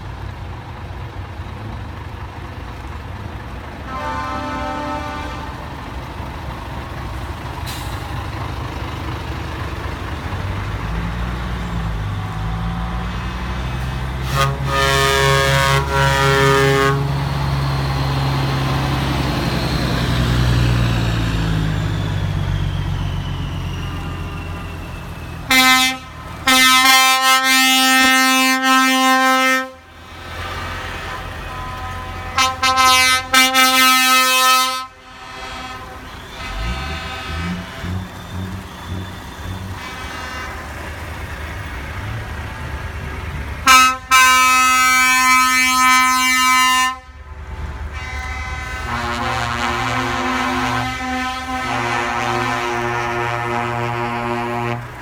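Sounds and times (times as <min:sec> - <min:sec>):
truck engines driving past: 0:00.0 - 0:55.0
air horn blasts: 0:03.8 - 0:05.8, 0:13.8 - 0:17.3, 0:25.4 - 0:29.9, 0:30.9 - 0:40.9, 0:43.6 - 0:47.2, 0:47.8 - 0:55.0.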